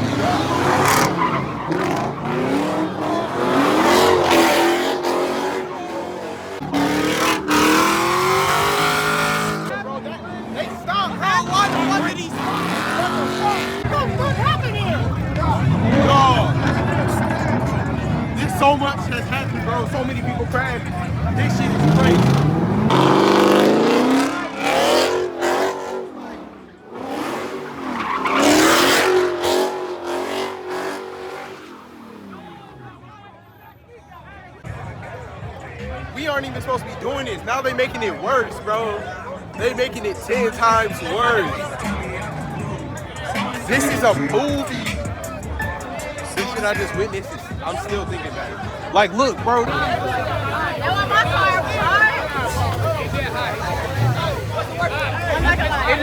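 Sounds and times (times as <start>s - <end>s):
car engine revving high: 0.0s - 33.1s
tires squealing: 0.0s - 56.0s.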